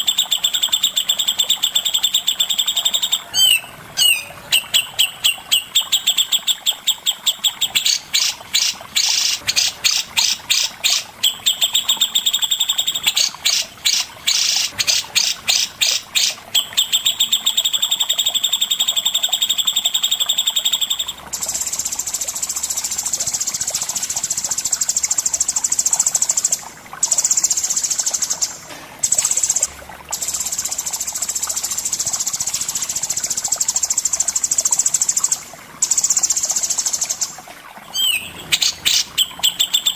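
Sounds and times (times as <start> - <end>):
high buzzy bird trill: 0.0 - 7.1.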